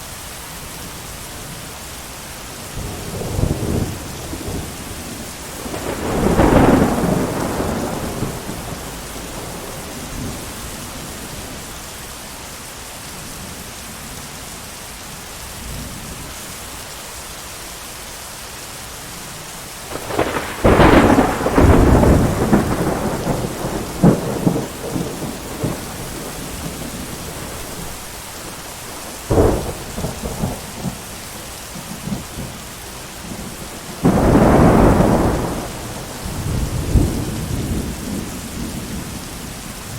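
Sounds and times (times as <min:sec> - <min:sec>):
heavy rain hiss: 0:00.0 - 0:39.9
rolling thunder: 0:02.8 - 0:11.7, 0:19.9 - 0:31.1, 0:33.2 - 0:39.9
sharp thunder crack: 0:05.6 - 0:10.6, 0:19.9 - 0:27.9, 0:29.3 - 0:31.0, 0:33.3 - 0:39.1.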